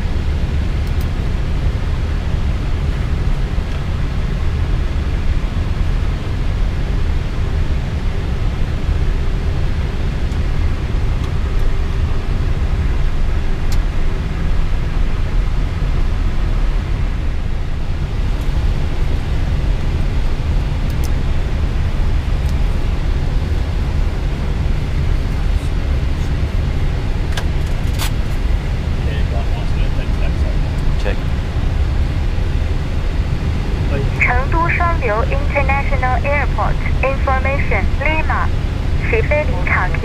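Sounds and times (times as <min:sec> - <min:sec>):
aircraft engines idling: 0:00.4 - 0:40.0
air conditioning running: 0:17.9 - 0:40.0.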